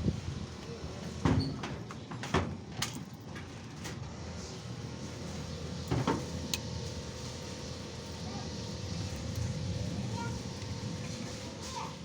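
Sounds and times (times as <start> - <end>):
knocks and clatters of objects: 1.2 - 4.0.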